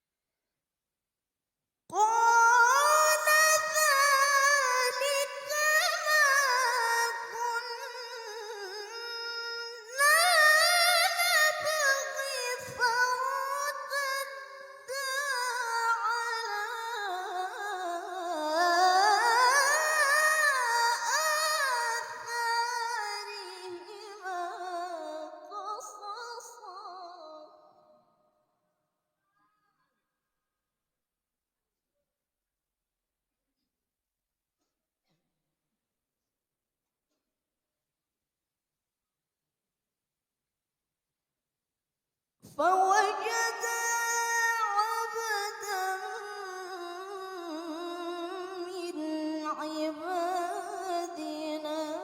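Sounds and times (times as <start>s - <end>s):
woman reciting melodically: 1.9s - 27.8s, 42.5s - 52.0s.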